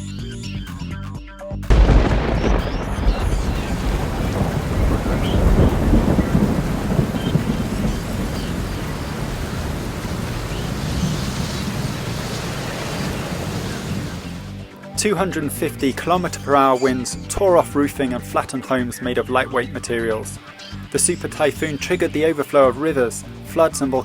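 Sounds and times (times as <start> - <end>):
strong wind: 1.7 - 14.5
deep rumbling low noise: 1.7 - 14.6
heavy rain: 1.7 - 14.6.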